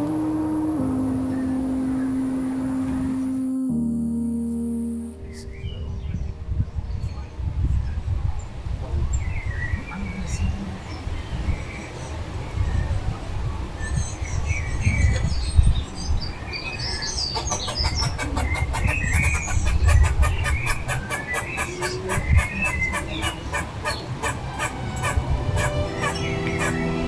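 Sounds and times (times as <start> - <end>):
steady low rumble: 0.0 - 10.8
small birds chirping: 13.8 - 27.0.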